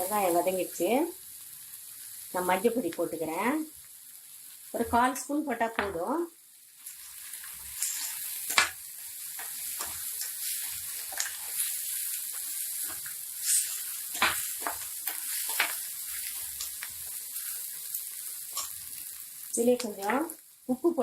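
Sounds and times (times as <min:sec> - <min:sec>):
onions sizzling in oil: 0:00.0 - 0:21.0
spoon scraping and knocking pan: 0:07.8 - 0:16.7.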